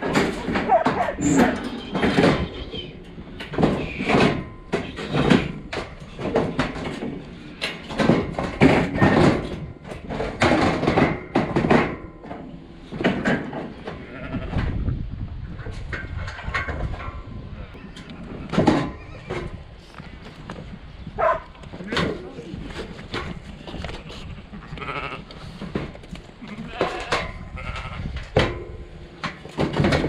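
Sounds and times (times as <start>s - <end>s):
sheep and lambs bleating: 14.0s - 14.5s, 23.8s - 25.5s, 26.4s - 28.1s.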